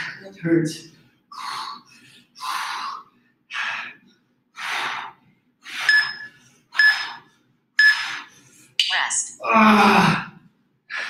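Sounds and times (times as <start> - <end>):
heavy hard breathing: 0.9 - 8.8
interval timer beeps: 5.8 - 8.3.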